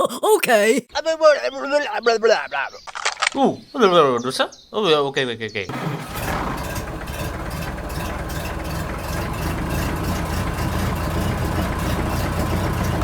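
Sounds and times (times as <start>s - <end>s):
engine idling: 5.7s - 13.0s.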